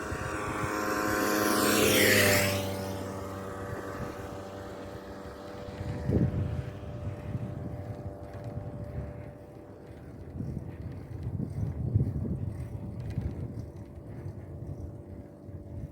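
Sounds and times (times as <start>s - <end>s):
vehicle engine passing: 0.0s - 10.5s
wind on microphone: 0.0s - 15.9s.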